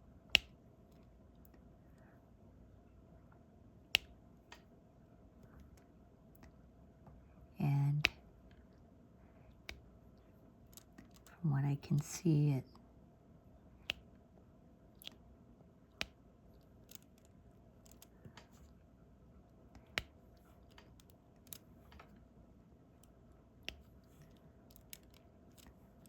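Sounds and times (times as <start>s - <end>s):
pen clicks and taps: 23.6s - 25.8s.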